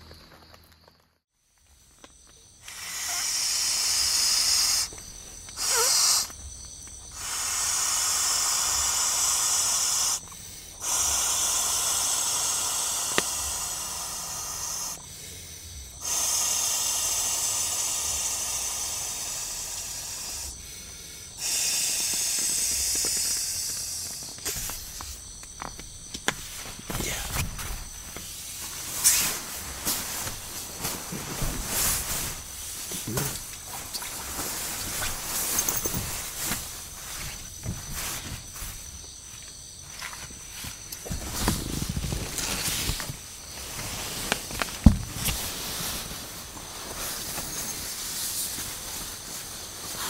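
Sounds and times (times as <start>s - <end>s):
breath blowing into stove: 2.6s - 4.9s, 5.6s - 6.3s, 16.0s - 24.8s.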